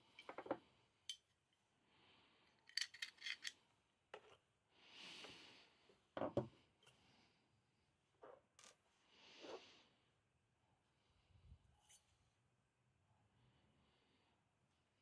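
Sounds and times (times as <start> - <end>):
clicks and clinks of small parts: 2.5 - 3.6.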